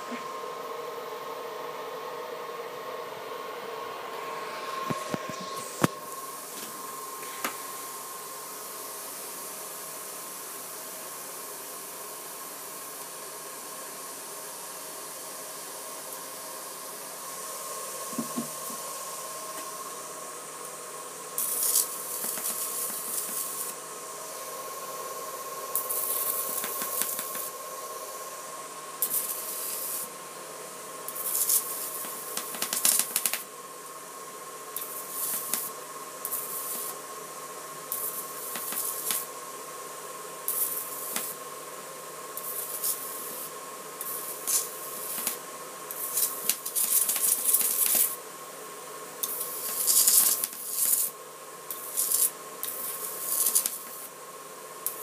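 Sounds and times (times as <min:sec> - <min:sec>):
high-pitched electrical whine: 0:00.0 - 0:55.0
electric arc hissing: 0:13.9 - 0:48.3, 0:49.2 - 0:54.2, 0:54.8 - 0:55.0.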